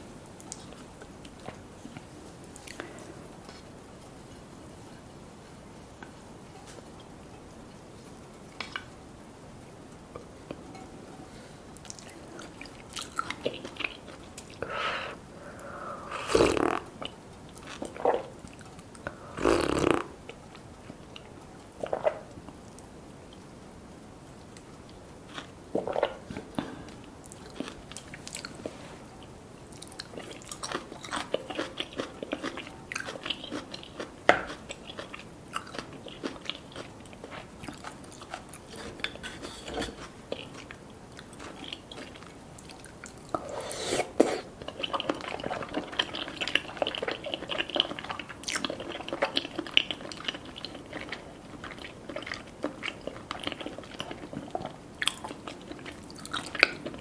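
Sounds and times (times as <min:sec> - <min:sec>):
crunchy chewing: 0:24.6 - 0:57.0.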